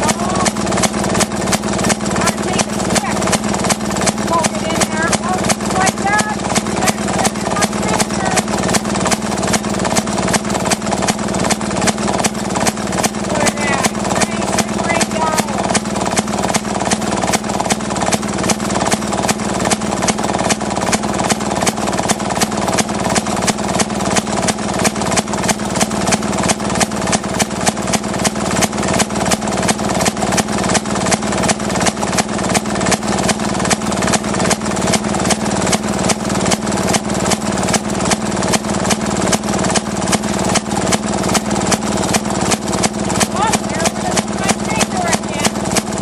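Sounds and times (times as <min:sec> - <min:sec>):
two-stroke engine popping: 0:00.0 - 0:46.0.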